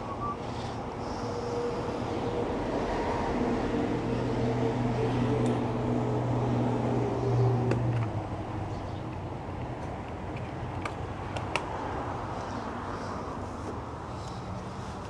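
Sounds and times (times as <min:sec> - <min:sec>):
traffic noise: 0:00.0 - 0:15.0
vehicle engine humming: 0:00.0 - 0:15.0.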